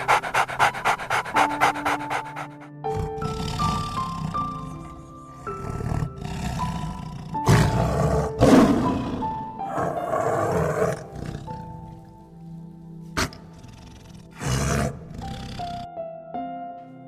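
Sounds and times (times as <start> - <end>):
big cat roaring: 0.0 - 12.1, 13.2 - 15.9
slow background music: 0.0 - 17.0.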